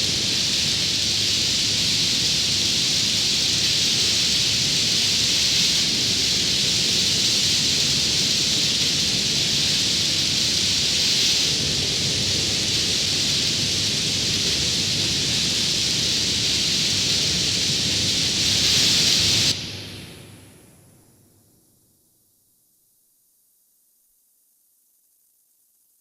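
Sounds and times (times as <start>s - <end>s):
rain hissing: 0.0s - 20.3s.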